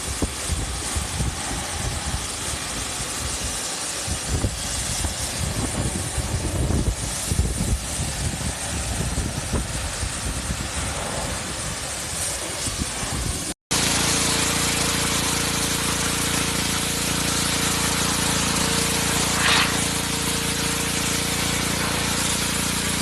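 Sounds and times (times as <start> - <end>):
pressure washer water jet hiss: 0.0 - 23.0
low motor drone: 8.6 - 23.0.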